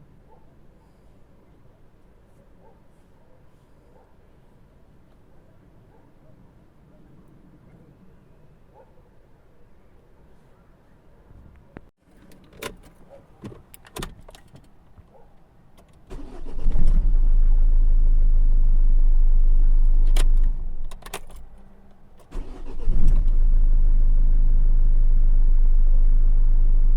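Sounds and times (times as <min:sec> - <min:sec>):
diesel engine starting and running: 0:16.1 - 0:26.9.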